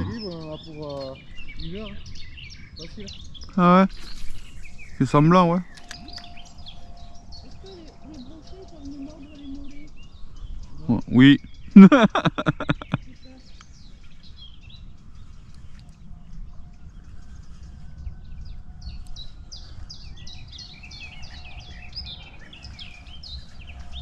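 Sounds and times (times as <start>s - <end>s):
songbird chirping: 0.0s - 24.0s
wind rumble on microphone: 0.0s - 24.0s.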